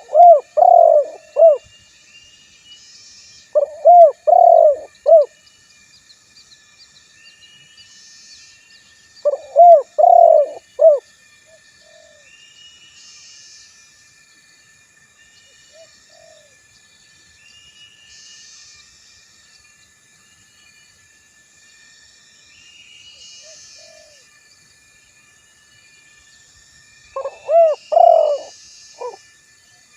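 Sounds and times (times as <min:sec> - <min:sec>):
dove cooing: 0:00.0 - 0:01.6, 0:03.6 - 0:05.3, 0:09.3 - 0:11.0, 0:27.2 - 0:29.2
small birds chirping: 0:00.0 - 0:01.6, 0:03.6 - 0:05.3, 0:09.2 - 0:11.0, 0:27.2 - 0:29.2.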